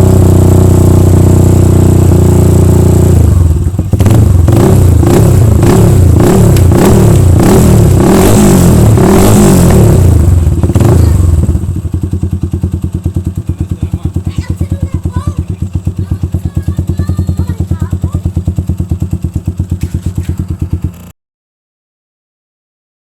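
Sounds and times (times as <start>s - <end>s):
motorcycle engine revving: 0.0s - 21.1s.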